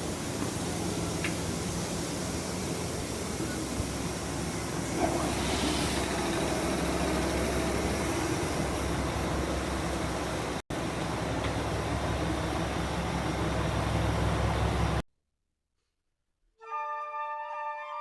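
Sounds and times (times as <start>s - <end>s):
electric train interior hum: 0.0s - 15.0s.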